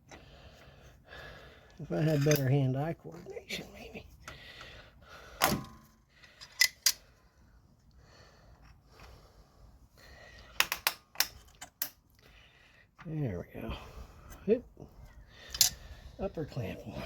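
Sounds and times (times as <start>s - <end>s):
metallic clicks of hose clamp: 1.7s - 2.5s, 5.4s - 7.1s, 10.6s - 12.2s, 15.5s - 15.8s.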